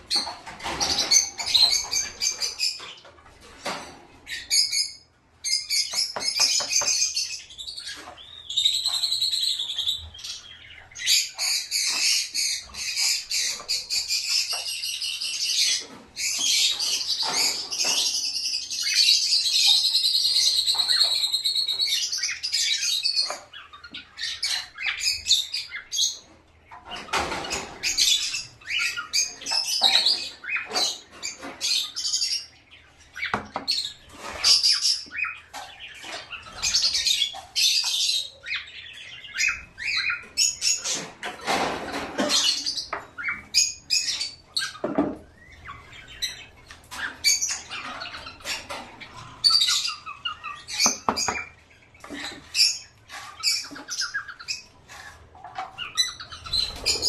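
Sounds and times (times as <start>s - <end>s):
birds chirping and squawking: 0.0s - 57.0s
wings fluttering and rustling: 52.0s - 57.0s.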